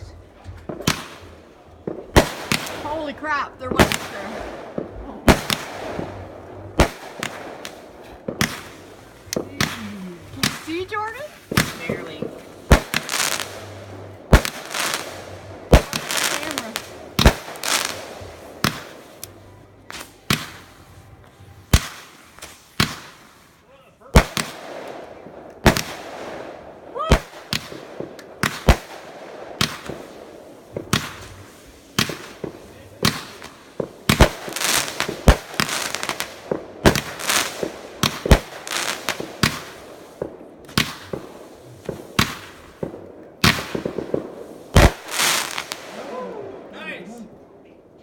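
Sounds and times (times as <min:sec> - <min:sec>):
fireworks bangs and booms: 0:00.0 - 0:47.6
fireworks crackling: 0:00.0 - 0:47.6.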